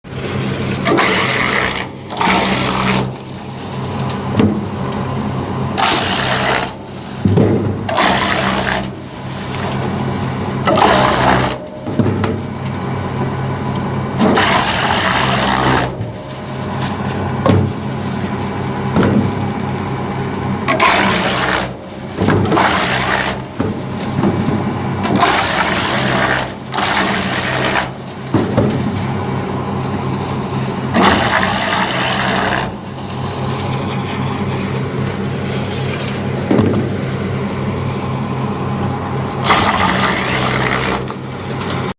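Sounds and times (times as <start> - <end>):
wood chipper humming: 0.0 - 41.9
wood chipping bursts: 0.8 - 3.6, 14.2 - 17.3, 20.7 - 24.3, 30.9 - 34.8, 39.4 - 41.9.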